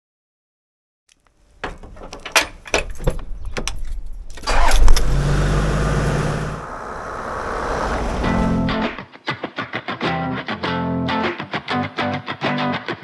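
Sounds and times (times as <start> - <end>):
car engine starting and running: 1.5 - 9.0
keys jangling: 1.6 - 5.7
clicks: 1.6 - 9.0.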